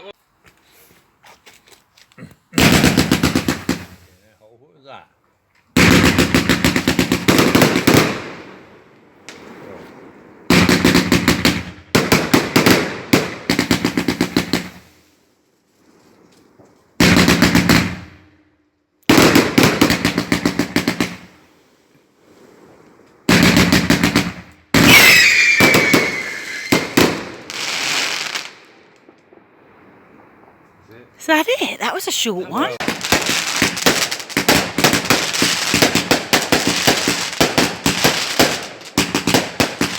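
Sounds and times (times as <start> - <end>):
fireworks bangs: 2.6 - 4.1, 5.8 - 15.0, 16.6 - 18.4, 19.1 - 21.6, 22.2 - 39.9
fireworks whistles falling in pitch: 24.8 - 28.4.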